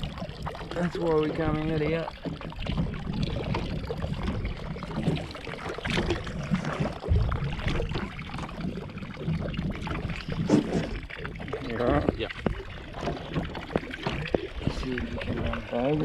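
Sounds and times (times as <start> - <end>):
water slapping against boat hull: 0.0 - 16.0.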